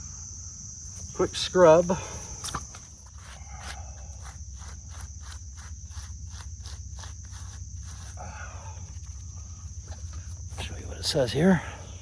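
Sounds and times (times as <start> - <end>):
insects chirring: 0.0 - 12.0
scrub brush scrubbing stone: 3.0 - 10.8.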